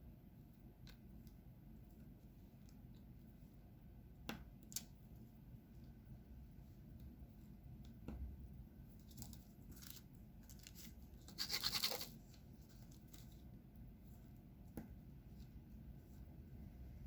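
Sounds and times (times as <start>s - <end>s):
faint scratches: 10.6s - 13.4s.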